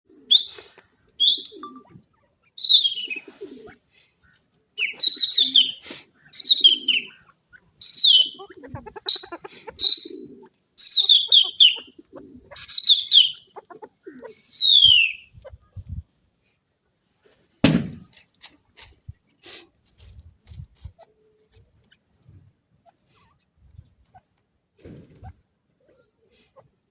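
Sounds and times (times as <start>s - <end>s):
francolin calling: 2.5s - 3.4s, 4.8s - 15.3s
thump: 17.6s - 18.2s.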